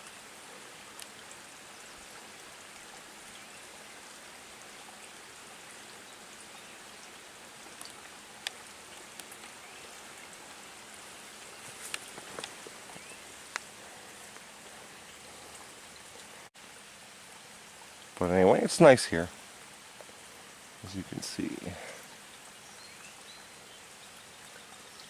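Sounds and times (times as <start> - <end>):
light rain hissing: 0.0 - 25.0
raindrops ticking: 0.8 - 3.4, 4.0 - 16.5.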